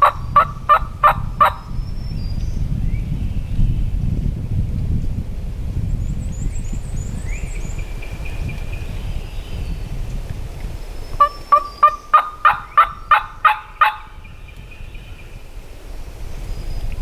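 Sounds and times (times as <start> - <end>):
turkey yelps: 0.0 - 1.6, 11.2 - 14.1.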